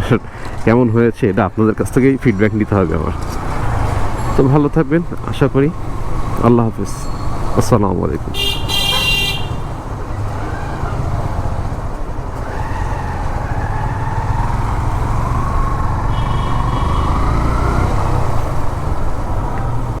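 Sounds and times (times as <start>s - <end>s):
wind: 0.0s - 20.0s
motorcycle engine rumble: 1.8s - 20.0s
vehicle horn: 8.3s - 9.8s, 16.0s - 17.5s.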